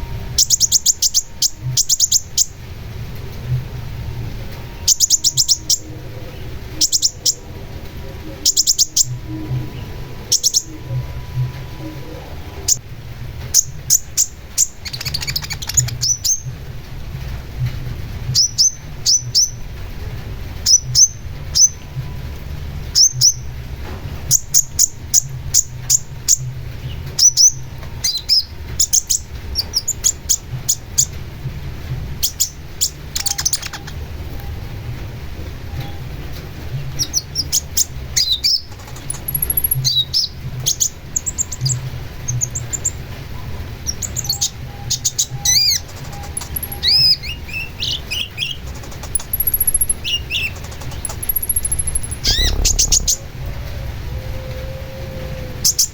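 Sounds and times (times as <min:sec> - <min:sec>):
low background hum: 0:00.0 - 0:55.9
bird singing sharp high notes: 0:38.3 - 0:40.3, 0:44.4 - 0:54.0.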